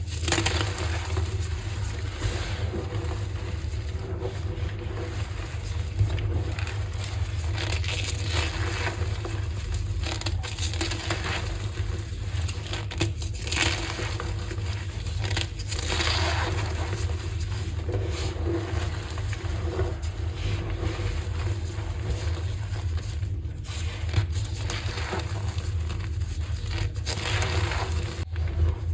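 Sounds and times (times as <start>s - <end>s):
chalk being crushed by hand: 0.0s - 28.3s.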